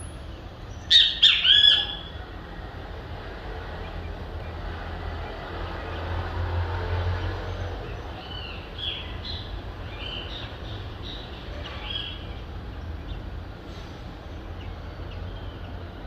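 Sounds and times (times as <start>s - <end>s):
distant city noise: 0.0s - 16.0s
bird chirping: 0.3s - 2.2s, 7.5s - 13.3s
vehicle passing rumble: 2.0s - 16.0s.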